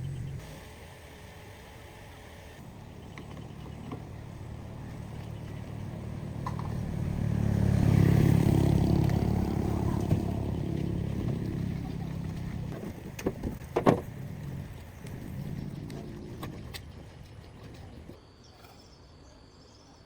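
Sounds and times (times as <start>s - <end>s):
vehicle passing by: 4.2s - 12.8s.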